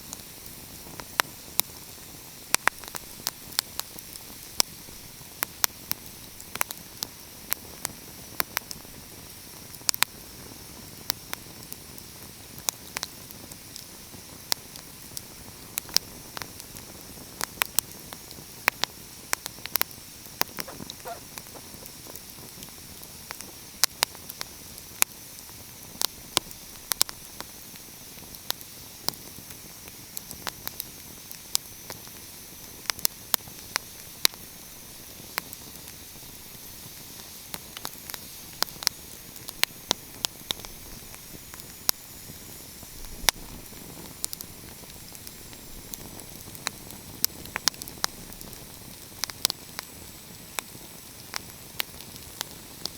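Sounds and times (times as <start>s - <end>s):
wood fire crackling: 14.7s - 23.6s, 35.4s - 52.9s.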